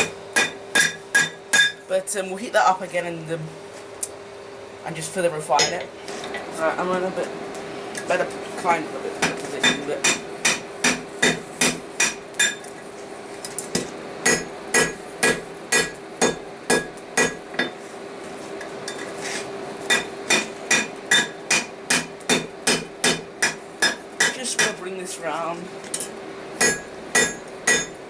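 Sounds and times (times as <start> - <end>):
hammer ringing on anvil: 0.0 - 1.8, 19.9 - 24.8, 26.6 - 28.0
steady hum: 19.8 - 28.0.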